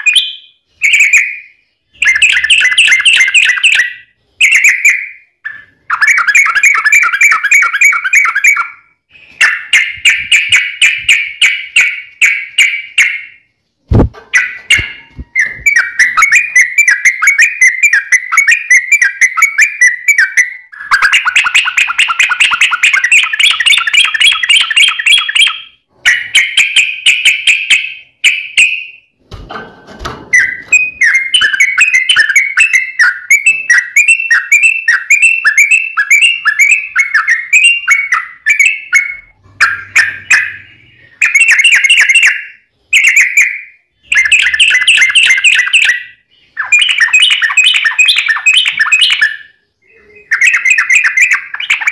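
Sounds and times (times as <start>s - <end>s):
bird singing chattering notes: 14.3s - 29.0s, 30.4s - 51.9s.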